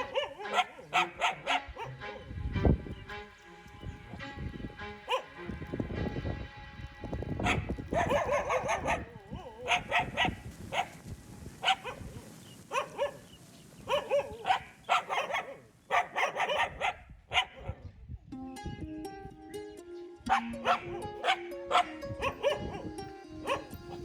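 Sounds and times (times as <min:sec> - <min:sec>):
dogs barking: 0:00.0 - 0:02.3, 0:05.0 - 0:05.4, 0:07.4 - 0:18.0, 0:20.3 - 0:24.0
music: 0:00.0 - 0:09.0, 0:18.3 - 0:24.0.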